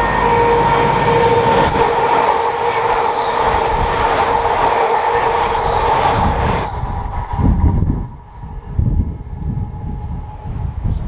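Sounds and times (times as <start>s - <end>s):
humming tone: 0.0s - 11.0s
train rushing past: 0.0s - 11.0s.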